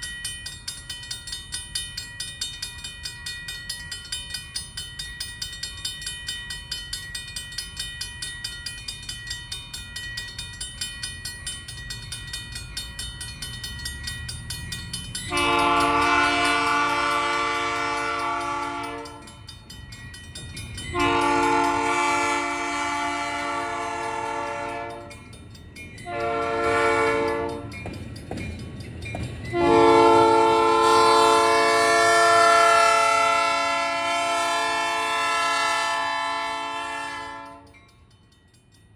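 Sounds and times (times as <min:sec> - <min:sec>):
railroad crossing bell ringing: 0:00.0 - 0:38.9
locomotive horn blasts: 0:15.3 - 0:19.4, 0:20.9 - 0:25.2, 0:26.1 - 0:27.8, 0:29.5 - 0:37.8.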